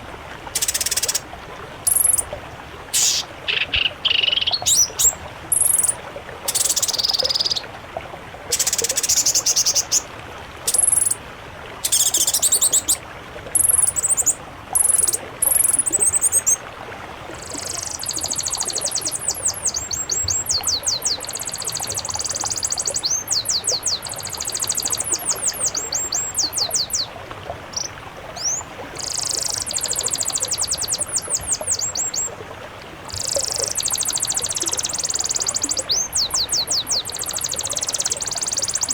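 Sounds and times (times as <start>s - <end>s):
songbirds trilling: 0.6s - 1.2s, 1.9s - 2.3s, 2.9s - 7.6s, 8.5s - 10.1s, 10.7s - 11.2s, 11.8s - 16.6s, 17.3s - 32.4s, 33.0s - 38.9s
faint steady hiss: 21.2s - 36.3s.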